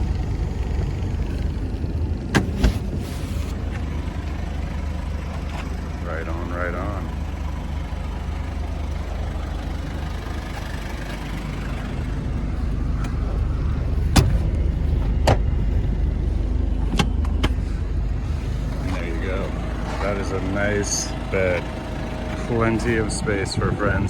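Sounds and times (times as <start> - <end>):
diesel engine idling: 0.0 - 24.0
seats latching clicks: 2.3 - 3.9, 12.8 - 15.9, 16.8 - 17.8.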